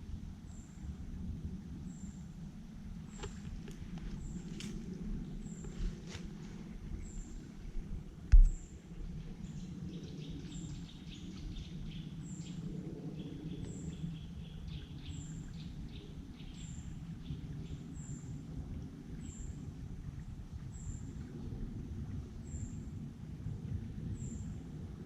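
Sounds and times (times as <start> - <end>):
forest birds chirping: 3.0 - 18.4.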